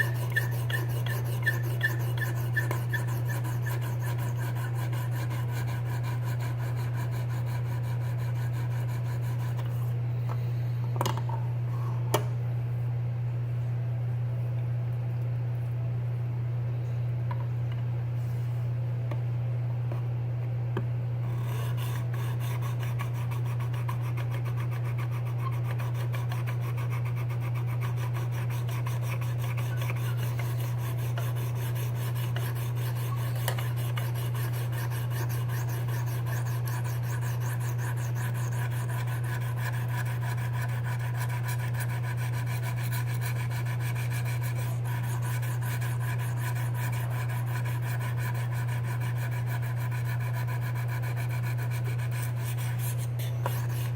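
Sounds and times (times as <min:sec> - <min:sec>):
stone rasping on knife blade: 0:00.0 - 0:09.8, 0:21.2 - 0:53.9
steady low hum: 0:00.0 - 0:53.9.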